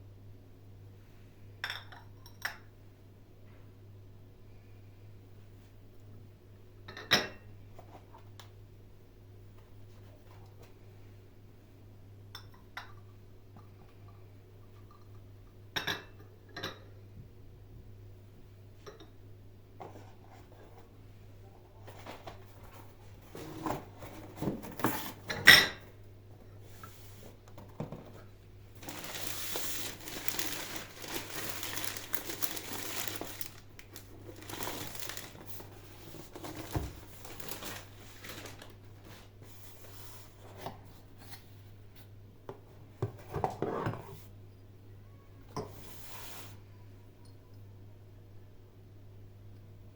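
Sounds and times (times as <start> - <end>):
packaging crinkling and rustling: 27.2 - 39.4.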